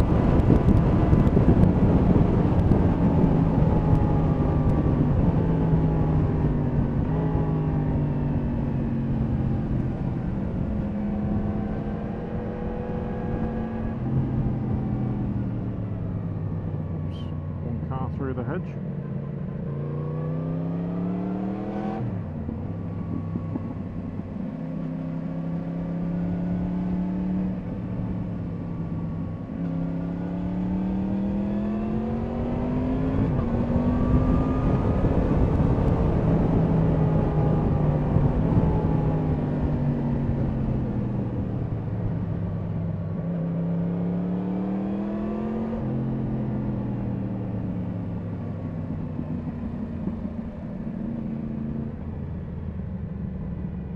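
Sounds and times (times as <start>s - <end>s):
wind rush: 0.0s - 8.6s, 21.5s - 24.8s, 30.8s - 43.0s.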